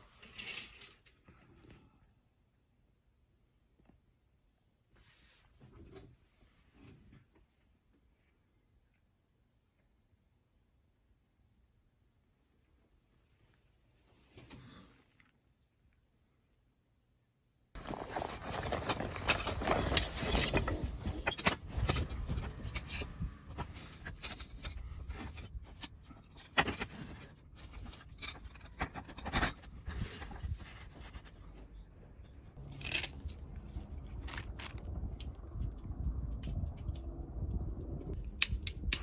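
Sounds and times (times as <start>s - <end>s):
scraping and rubbing: 17.8s - 31.8s, 32.6s - 34.9s.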